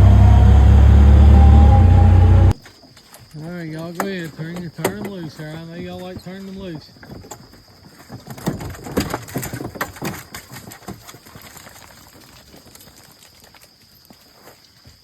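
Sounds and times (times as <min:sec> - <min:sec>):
hounds clattering and scrabbling: 0:02.7 - 0:14.6.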